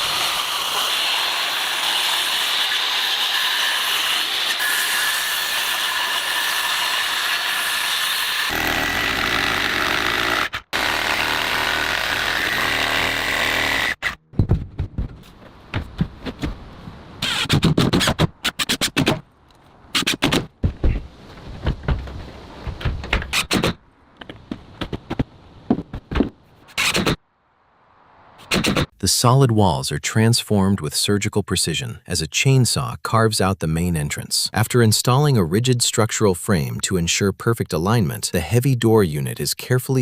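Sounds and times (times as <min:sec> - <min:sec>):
power tool running: 0:00.0 - 0:14.2.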